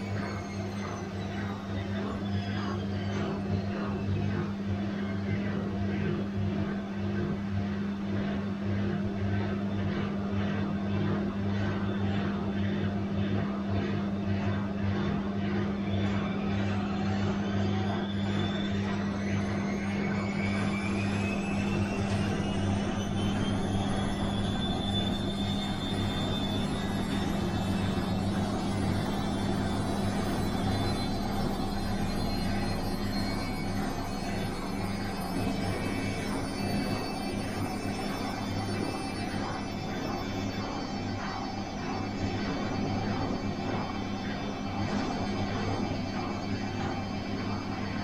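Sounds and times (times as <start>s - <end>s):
washing machine motor hum: 8.1s - 48.0s.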